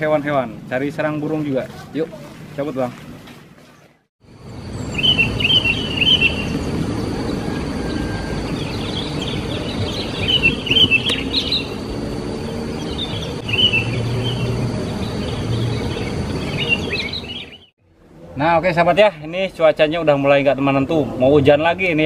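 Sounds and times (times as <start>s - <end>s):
outdoor background noise: 0.0s - 22.0s
songbirds twittering: 3.6s - 17.8s.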